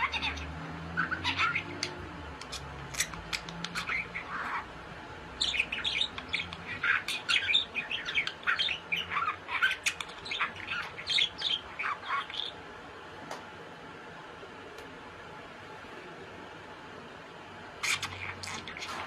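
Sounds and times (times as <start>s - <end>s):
bird chirping: 0.0s - 4.7s, 5.4s - 12.6s, 17.8s - 19.0s.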